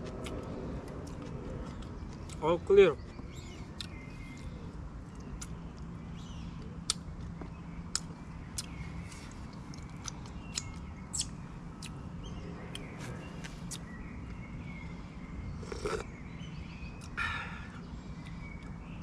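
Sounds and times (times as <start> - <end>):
faint bird chirps: 2.3 - 19.0
sipping a drink: 15.6 - 16.1.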